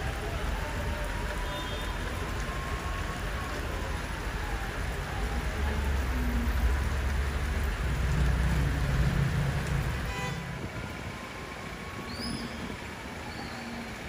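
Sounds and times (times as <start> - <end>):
heavy rain hissing: 0.0 - 14.0
passing vehicle engine rumble: 4.8 - 12.0.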